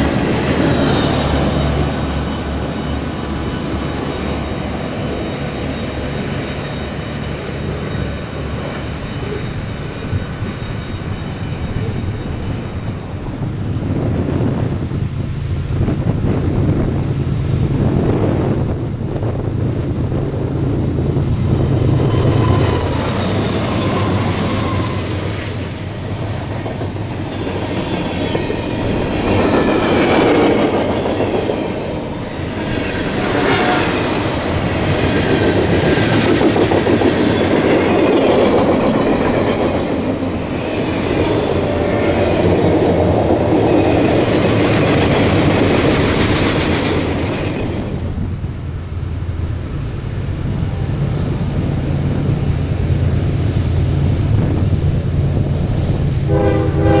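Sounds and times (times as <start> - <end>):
train wheels clattering over rails: 21.0 - 48.4
faint wheel squeal: 22.0 - 25.4.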